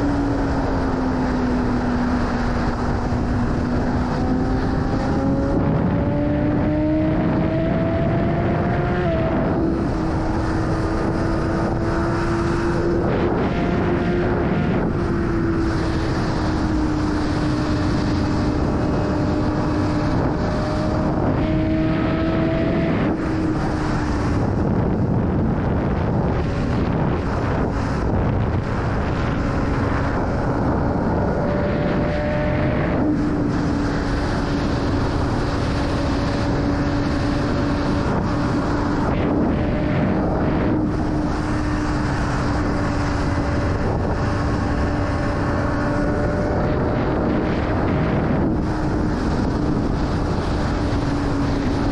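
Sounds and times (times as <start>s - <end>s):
wind rush on microphone: 0.0s - 51.9s.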